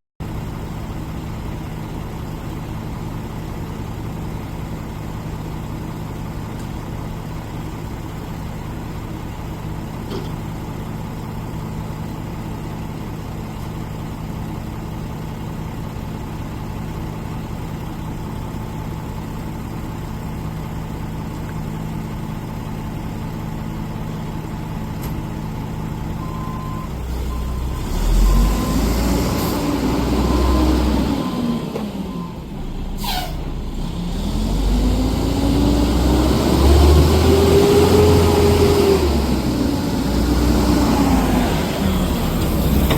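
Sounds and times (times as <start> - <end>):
short falling hiss: 32.9 - 33.6.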